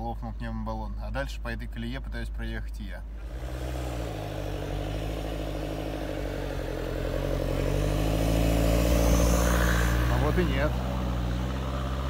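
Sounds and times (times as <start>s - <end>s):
off-road vehicle engines running: 3.0s - 12.0s.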